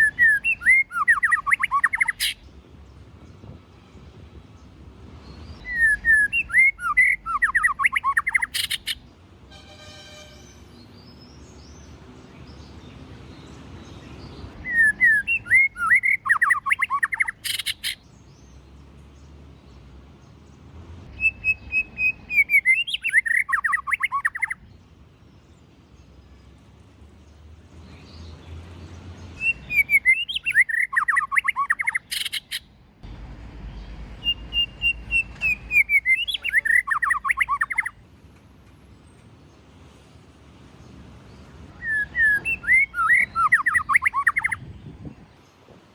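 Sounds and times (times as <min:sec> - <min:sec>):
bird whistling song: 0:00.0 - 0:02.4, 0:05.4 - 0:09.1, 0:14.2 - 0:18.0, 0:21.1 - 0:24.7, 0:29.3 - 0:32.7, 0:34.2 - 0:38.0, 0:41.7 - 0:44.7.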